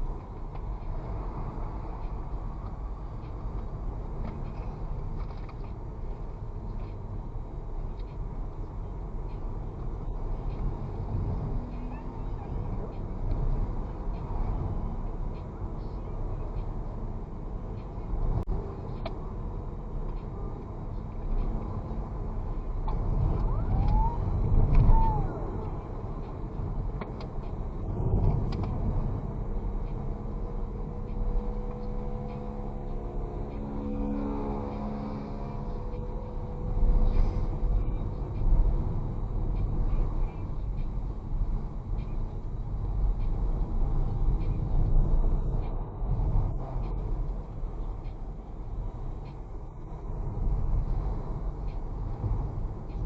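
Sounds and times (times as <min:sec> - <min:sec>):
engine and road rumble: 0:00.0 - 0:53.0
wind noise: 0:21.3 - 0:53.0.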